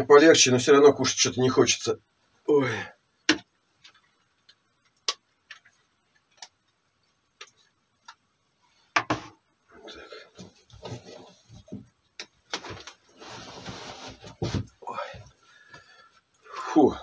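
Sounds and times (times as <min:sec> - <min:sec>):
rustling and shuffling: 0:07.0 - 0:16.4.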